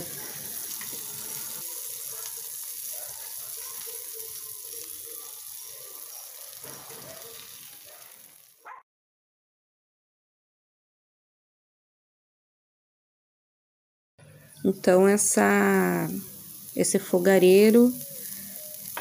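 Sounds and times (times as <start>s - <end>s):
patties sizzling on hot griddle: 0.0s - 8.6s, 14.4s - 19.0s.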